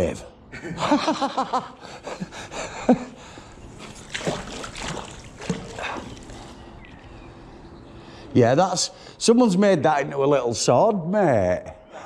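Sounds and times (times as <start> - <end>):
water splashing and sloshing: 1.9 - 7.7.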